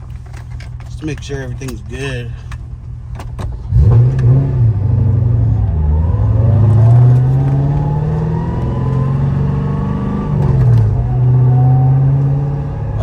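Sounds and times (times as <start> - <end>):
car engine accelerating: 3.5 - 13.0.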